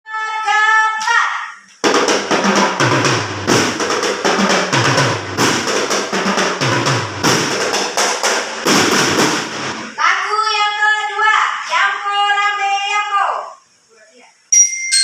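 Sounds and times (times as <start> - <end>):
snare drum rolls: 1.8 - 9.9.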